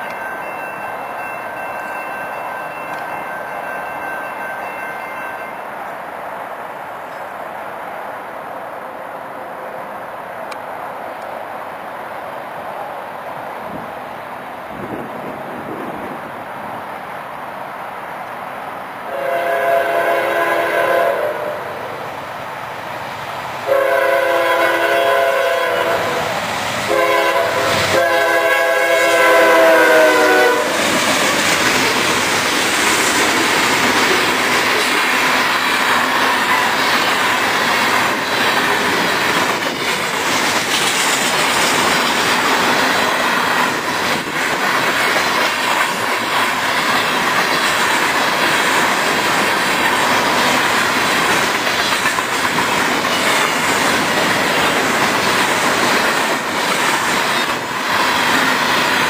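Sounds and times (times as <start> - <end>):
locomotive air horn blasts: 19.1 - 21.9, 23.6 - 30.9
freight cars rumbling on rails: 19.8 - 59.0.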